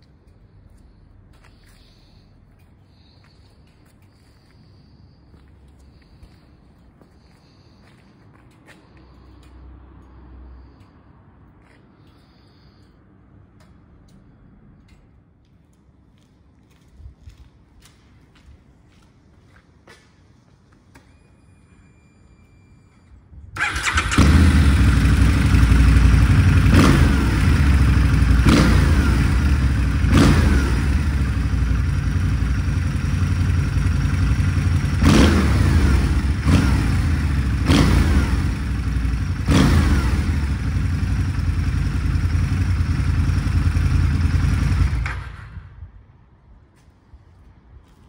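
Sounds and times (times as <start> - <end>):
motorcycle engine revving: 23.6 - 45.5.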